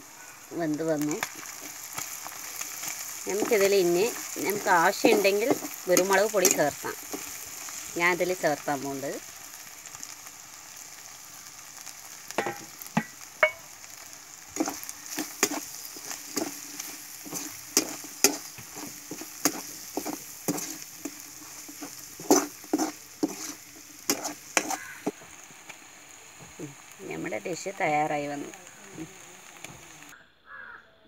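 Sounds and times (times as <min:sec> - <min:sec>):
chicken sizzling in a pan: 0:00.0 - 0:30.8
spoon scraping and knocking pan: 0:01.2 - 0:07.7, 0:12.3 - 0:13.7, 0:14.6 - 0:25.3.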